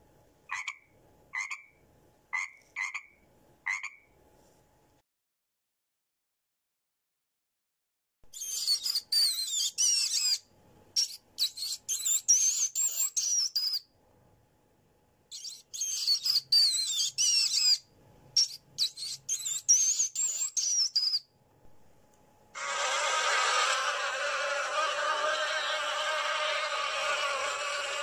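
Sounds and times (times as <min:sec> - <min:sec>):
mouse squeaking: 0:08.3 - 0:10.4, 0:11.0 - 0:13.8, 0:15.3 - 0:17.8, 0:18.4 - 0:21.2.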